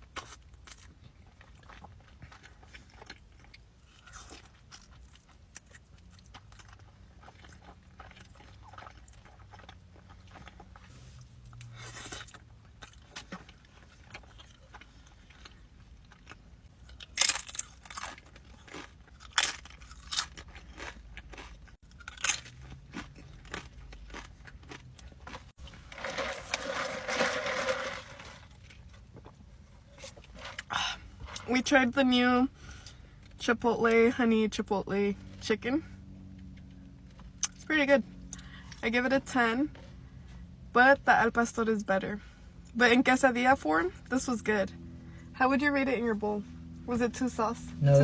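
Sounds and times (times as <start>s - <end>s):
soft chewing: 0.0s - 25.8s
loud crunching bites: 16.9s - 28.6s.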